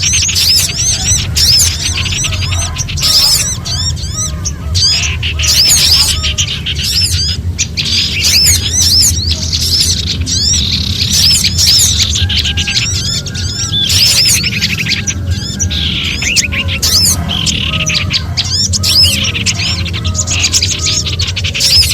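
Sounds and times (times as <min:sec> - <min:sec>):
songbirds chirping in alarm: 0:00.0 - 0:21.9
steady low hum: 0:00.0 - 0:21.9.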